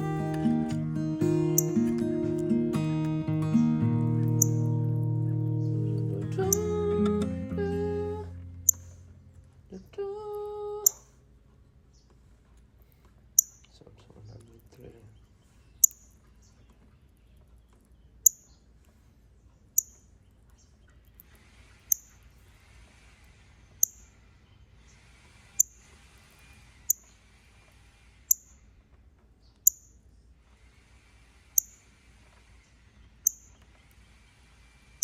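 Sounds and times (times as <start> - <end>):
bird chip calls: 0.0 - 6.8.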